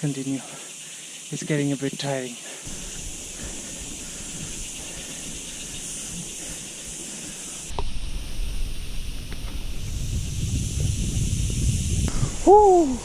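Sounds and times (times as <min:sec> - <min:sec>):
high outdoor hiss: 0:00.0 - 0:13.0
wind buffeting microphone: 0:02.7 - 0:13.0.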